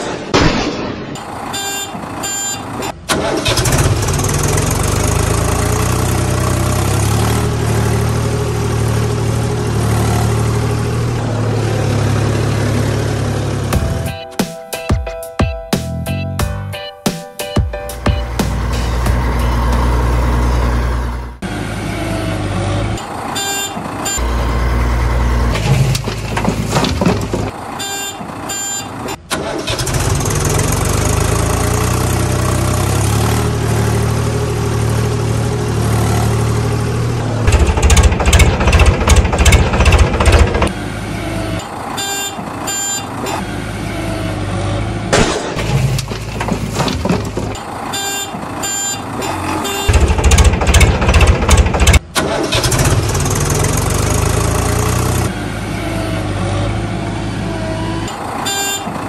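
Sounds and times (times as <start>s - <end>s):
diesel engines idling and revving: 0.0s - 59.0s
loud rapid rattling: 37.5s - 40.7s, 49.9s - 54.8s.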